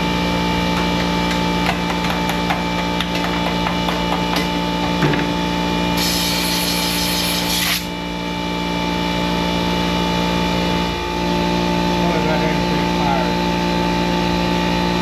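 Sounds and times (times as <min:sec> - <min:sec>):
water spraying hiss: 0:06.0 - 0:07.9
pressure washer engine running: 0:06.0 - 0:08.0.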